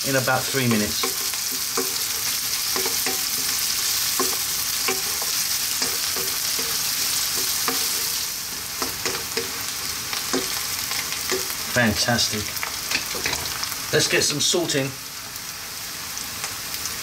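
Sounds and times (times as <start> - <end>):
onion and garlic sizzling in oil: 0.0 - 17.0
wooden spatula scraping a pan: 0.7 - 11.6.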